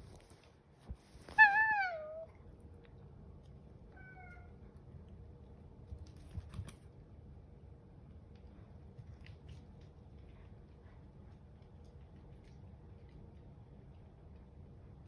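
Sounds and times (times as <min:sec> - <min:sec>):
cat meowing: 0:01.3 - 0:02.3, 0:03.9 - 0:04.6.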